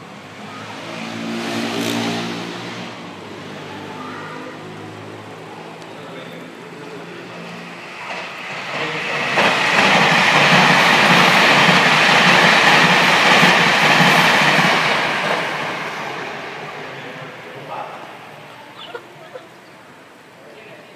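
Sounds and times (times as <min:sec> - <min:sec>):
train rumbling past: 0:00.0 - 0:20.7
rhythmic clatter of wheels: 0:04.6 - 0:15.8.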